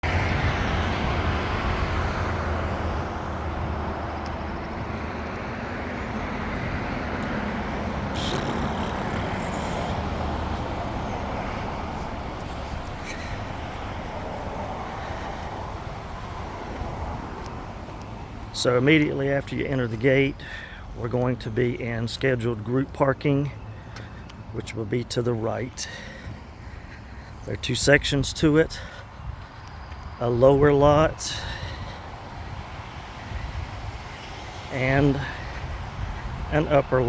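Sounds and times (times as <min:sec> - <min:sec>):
car engine hum: 0:00.0 - 0:25.4
tyre noise: 0:04.8 - 0:15.7.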